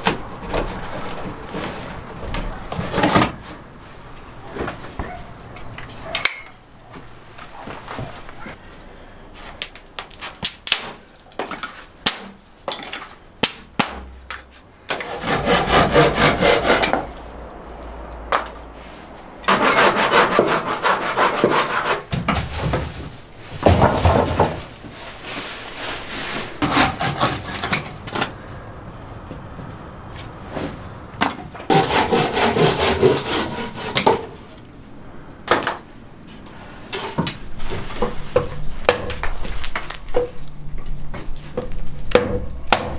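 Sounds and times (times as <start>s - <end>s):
hand saw cutting wood: 14.9s - 17.2s, 19.4s - 22.8s, 25.8s - 27.9s, 31.7s - 34.5s.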